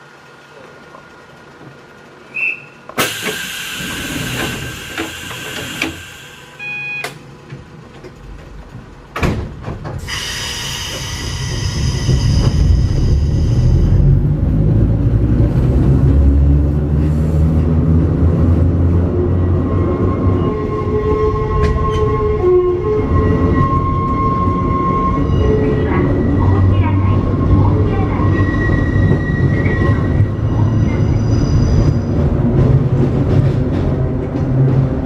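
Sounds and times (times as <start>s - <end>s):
railcar motors and wheels rumbling: 0.0s - 35.0s
air hissing: 3.0s - 6.6s, 10.0s - 13.8s
short beep: 6.5s - 7.1s.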